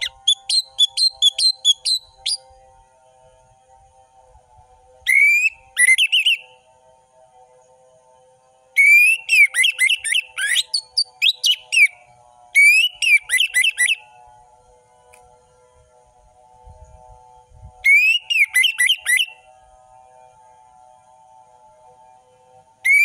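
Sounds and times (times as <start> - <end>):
thrush singing whistled notes: 0.0 - 2.6, 5.0 - 6.7, 8.8 - 14.2, 16.7 - 20.4, 22.8 - 23.0
faint steady hum: 0.0 - 23.0.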